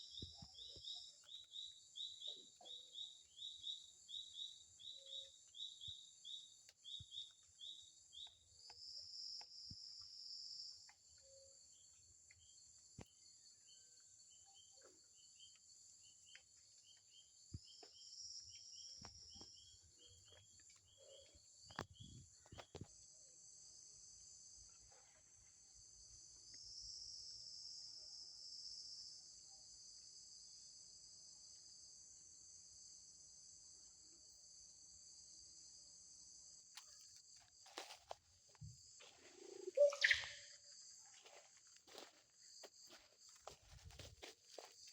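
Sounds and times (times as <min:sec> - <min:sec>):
loud insect trill: 0:25.8 - 0:44.9
insects buzzing: 0:31.9 - 0:44.9
short repeated chirps: 0:39.6 - 0:40.5.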